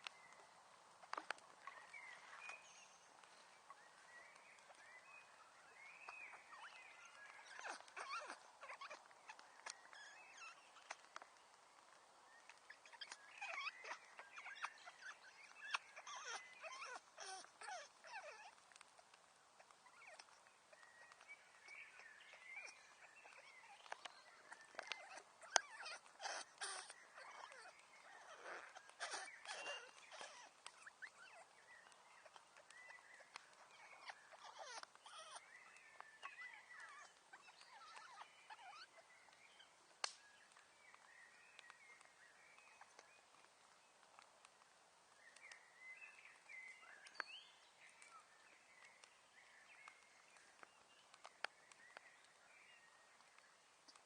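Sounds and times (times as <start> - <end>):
wood fire crackling and popping: 39.8 - 41.0.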